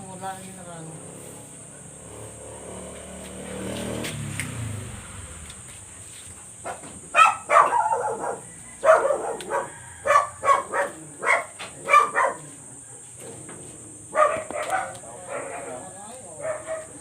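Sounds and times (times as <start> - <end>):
dog barking: 6.6 - 13.4, 14.1 - 17.0.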